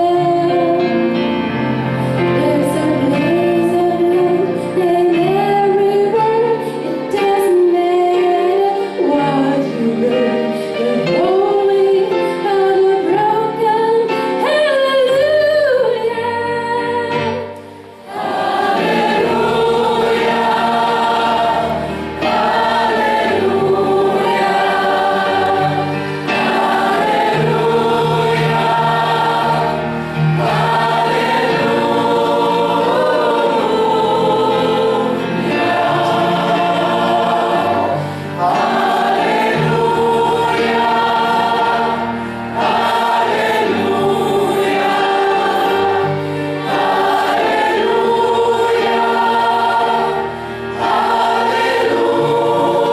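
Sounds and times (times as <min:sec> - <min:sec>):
choir singing with accompaniment: 0:17.2 - 0:52.9.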